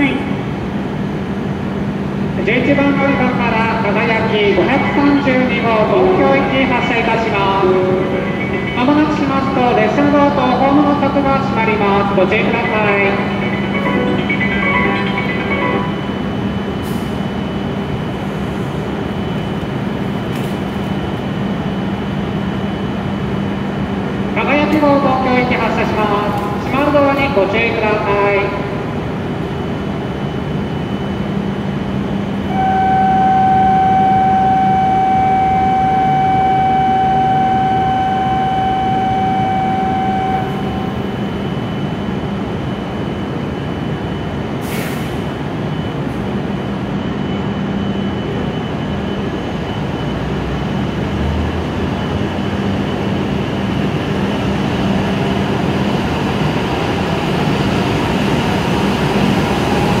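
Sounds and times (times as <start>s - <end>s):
train humming at platform: 0.0s - 60.0s
train running noise: 0.0s - 60.0s
electronic departure tone: 32.4s - 41.9s.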